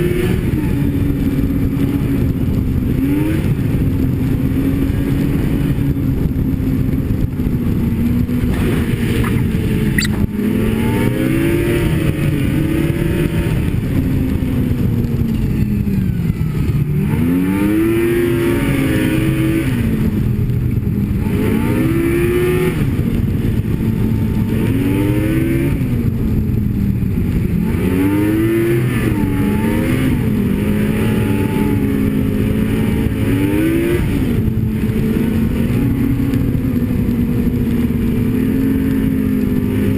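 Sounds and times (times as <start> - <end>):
snowmobile engine revving: 8.4 - 14.9, 16.3 - 20.2, 27.3 - 39.9
sharp click: 9.2 - 10.3.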